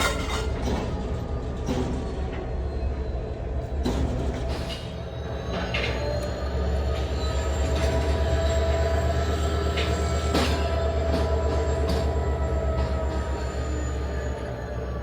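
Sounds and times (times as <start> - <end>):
high metal squeal: 0.0 - 0.7, 5.3 - 15.0.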